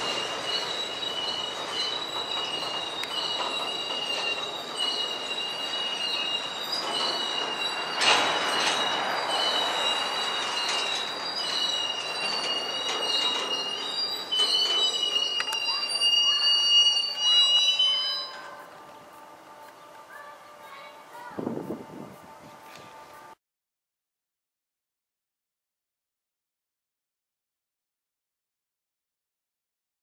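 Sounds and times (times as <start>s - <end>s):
freight cars rumbling: 0.0s - 23.4s
wheels squealing: 0.0s - 23.4s.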